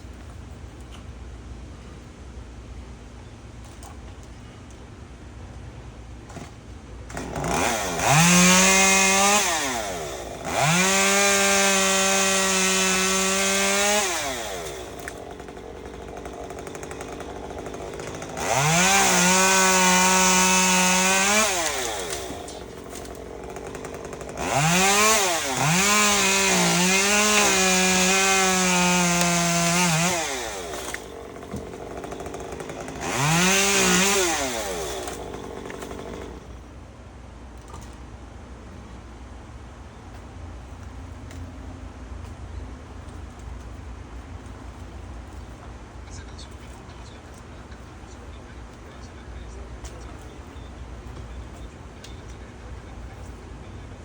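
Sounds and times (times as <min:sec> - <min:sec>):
chainsaw revving: 0:07.1 - 0:36.6.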